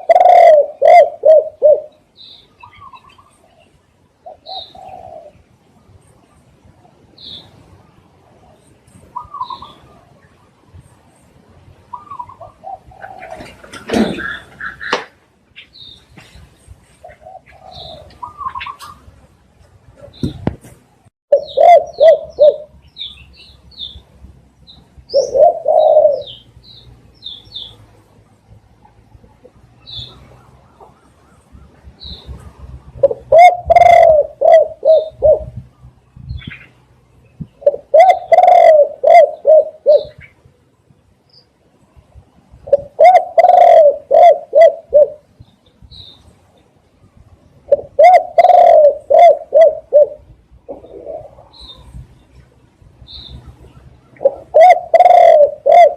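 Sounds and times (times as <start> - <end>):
dove cooing: 0.0 - 2.0, 2.6 - 5.4, 11.9 - 15.0, 17.0 - 19.1, 21.3 - 22.7, 25.1 - 26.5, 32.8 - 35.6, 37.6 - 40.3, 42.6 - 45.3, 47.7 - 52.0, 53.2 - 55.9
birds chirping: 0.0 - 55.9.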